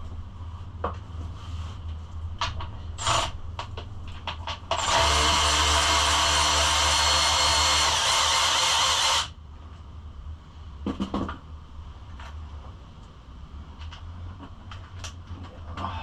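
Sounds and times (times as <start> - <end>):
handheld power tool running: 3.0 - 3.3, 4.7 - 9.3.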